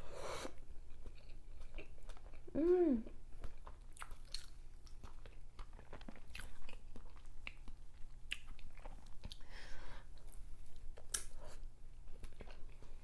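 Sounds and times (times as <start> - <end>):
person chewing food: 0.4 - 13.0.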